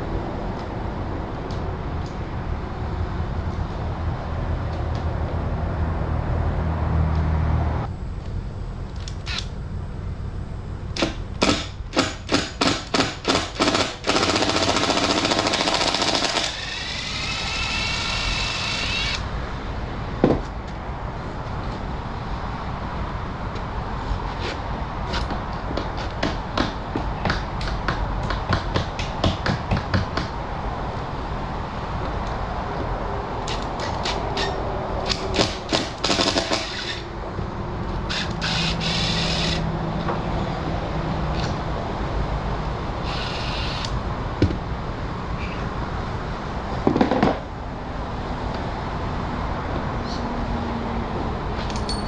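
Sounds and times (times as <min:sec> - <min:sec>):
power tool hissing and whining: 0:13.6 - 0:19.2, 0:38.1 - 0:39.7
sharp knocks on wood: 0:25.7 - 0:30.4.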